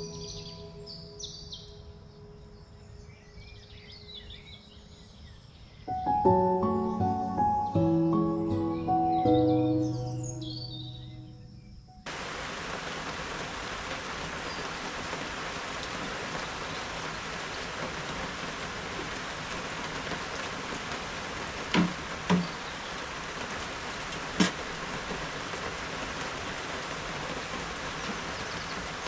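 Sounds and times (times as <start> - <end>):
music: 0.0 - 4.1, 5.9 - 12.1
steady rainfall: 12.0 - 29.0
sharp knocks: 21.7 - 22.6, 24.4 - 24.6.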